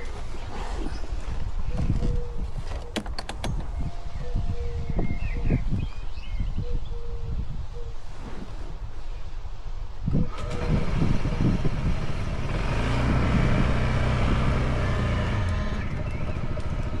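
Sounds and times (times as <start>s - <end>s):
motorcycle engine running: 10.3s - 17.0s.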